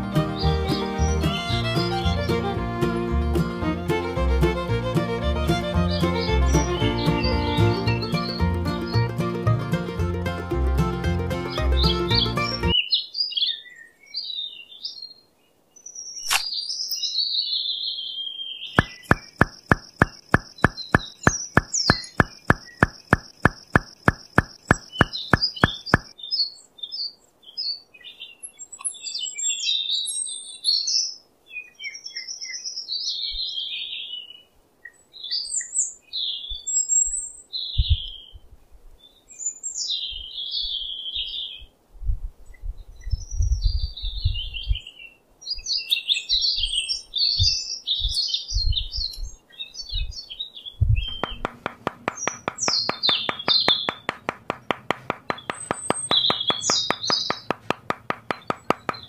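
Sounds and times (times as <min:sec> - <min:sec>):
small birds chirping: 0:00.2 - 0:02.4, 0:05.9 - 0:09.2, 0:11.4 - 0:38.4, 0:42.5 - 0:59.0
regular sharp clicks: 0:18.8 - 0:26.1, 0:51.1 - 0:59.0.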